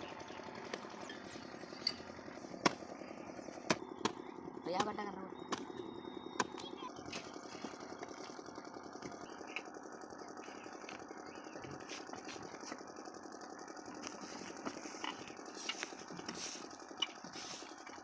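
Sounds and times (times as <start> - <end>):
diesel water pump engine running: 0.0 - 18.0.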